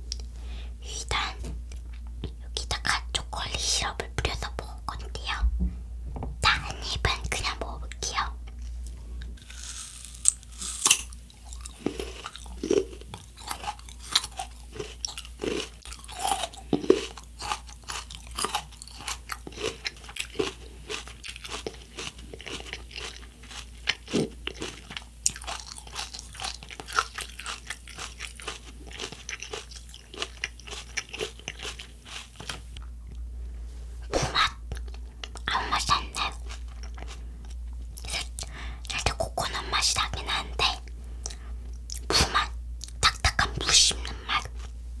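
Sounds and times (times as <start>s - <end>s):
chewing and crunching coconut: 9.3s - 33.2s, 34.3s - 39.2s.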